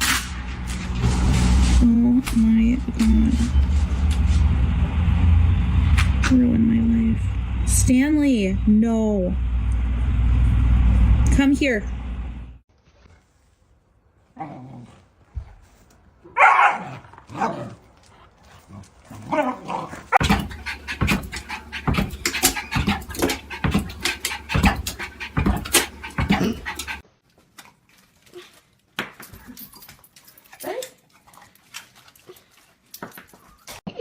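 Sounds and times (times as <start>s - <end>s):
dog vocalising: 19.3s - 27.0s.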